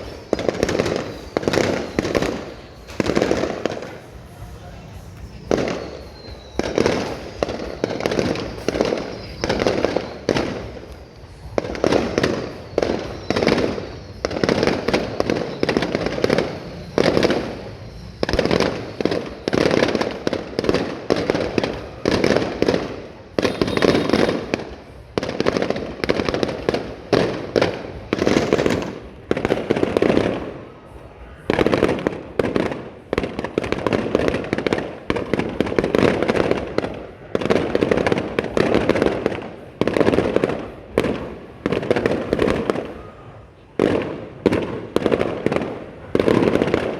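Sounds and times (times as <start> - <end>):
fireworks bangs and booms: 0.0 - 46.9
faint falling whistle: 5.2 - 10.4.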